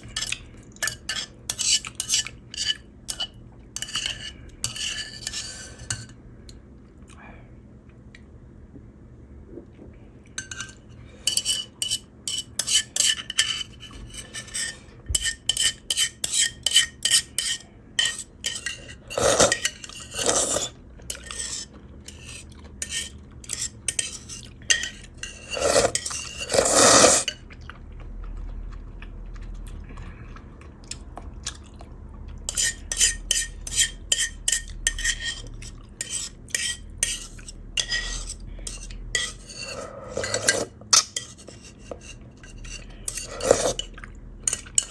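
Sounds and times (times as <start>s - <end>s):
slurping noodles: 18.6s - 31.0s, 37.2s - 40.8s, 42.7s - 44.1s
metal utensils clinking on clay pot: 36.0s - 41.5s.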